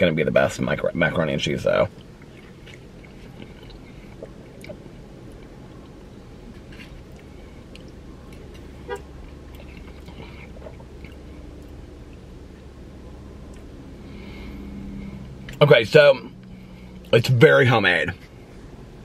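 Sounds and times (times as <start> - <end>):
low cabin hum: 0.0 - 19.0
man chewing: 1.9 - 15.6.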